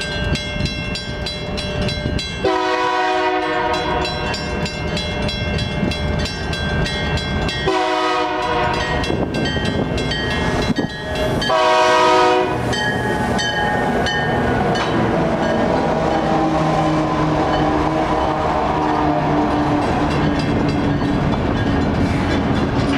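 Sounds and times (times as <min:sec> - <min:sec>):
passing train rumble: 0:00.0 - 0:22.9
locomotive horn blasts: 0:02.4 - 0:04.4, 0:07.6 - 0:09.2, 0:11.4 - 0:12.8, 0:15.8 - 0:20.1.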